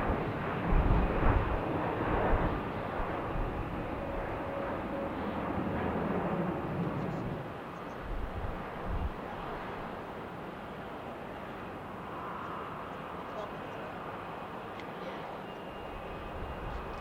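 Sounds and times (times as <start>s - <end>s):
wind buffeting microphone: 0.0s - 4.8s, 8.0s - 10.0s
jet engine rushing: 0.0s - 10.0s.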